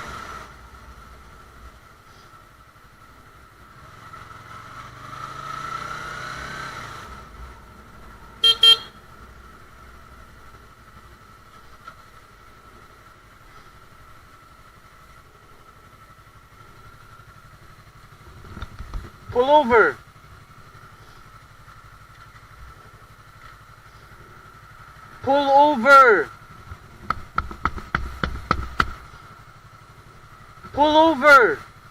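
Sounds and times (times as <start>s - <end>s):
motorcycle engine accelerating: 0.0s - 31.9s
horn blasts: 8.4s - 9.1s.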